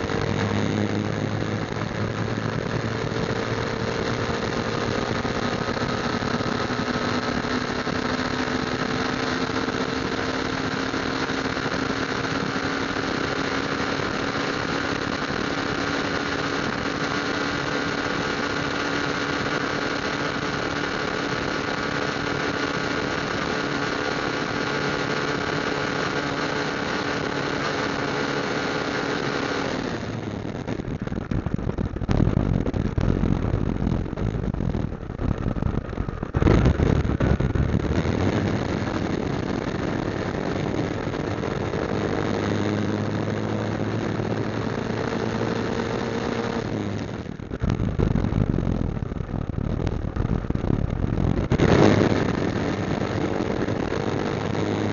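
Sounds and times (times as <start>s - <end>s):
motorcycle engine cruising: 0.0s - 54.9s
gusty low rumble: 30.0s - 54.9s.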